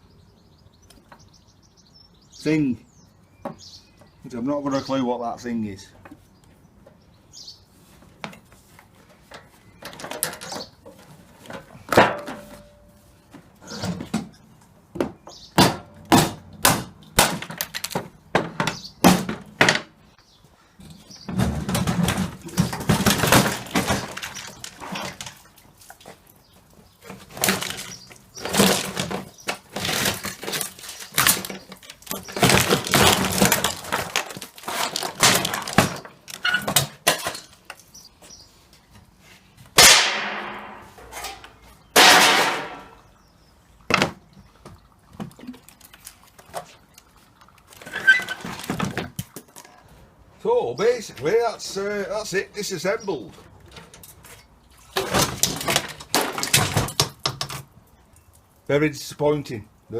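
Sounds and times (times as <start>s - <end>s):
metal parts knocking and scraping: 9.3s - 12.7s, 27.0s - 37.9s.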